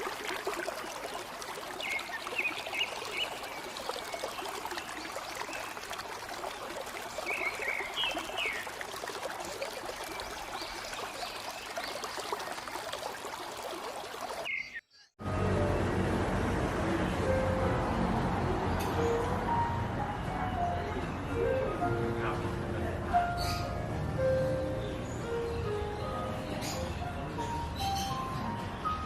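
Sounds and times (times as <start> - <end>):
river water flowing over rocks: 0.0 - 14.5.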